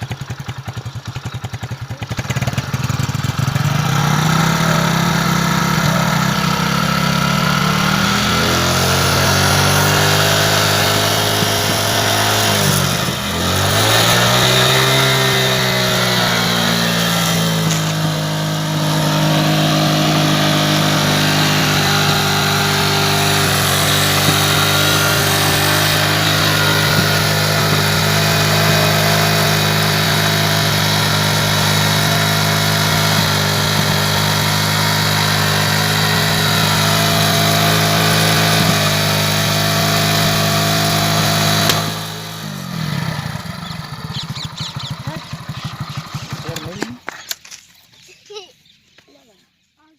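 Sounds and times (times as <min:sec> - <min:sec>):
motorcycle engine drone: 0:00.0 - 0:47.7.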